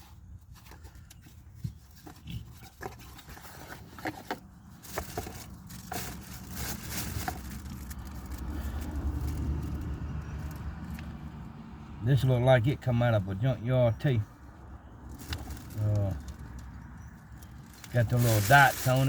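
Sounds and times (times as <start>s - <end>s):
scraping and rustling: 0.0s - 11.2s, 15.1s - 19.0s.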